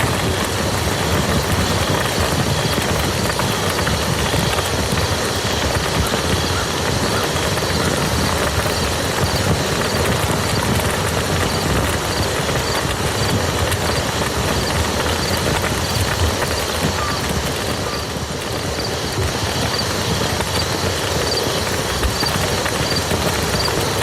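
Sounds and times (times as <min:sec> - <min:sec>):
rain falling on a field: 0:00.0 - 0:24.0.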